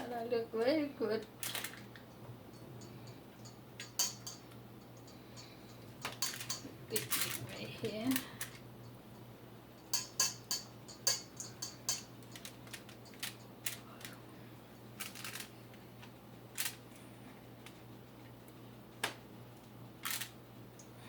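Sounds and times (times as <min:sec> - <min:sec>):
steady low hum: 0:00.0 - 0:21.0
utensils clicking in baking pan: 0:01.4 - 0:08.6, 0:09.8 - 0:14.2.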